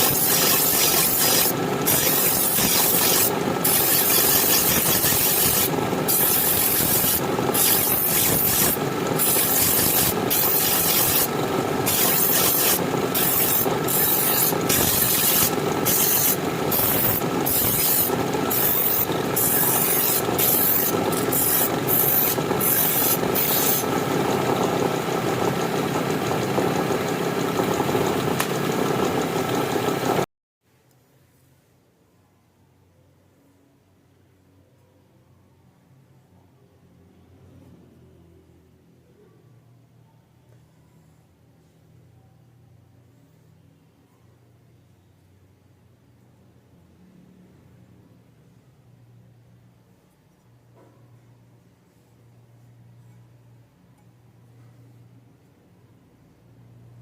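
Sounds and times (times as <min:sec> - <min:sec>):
abrasive rubbing on a knife: 0:00.0 - 0:23.9.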